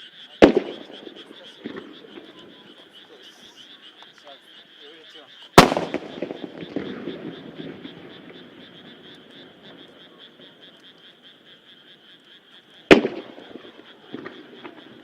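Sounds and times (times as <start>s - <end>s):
frogs croaking chorus: 0.0s - 15.0s
firework shell boom: 5.6s - 7.1s
firework crackle: 5.6s - 10.4s, 12.9s - 15.0s.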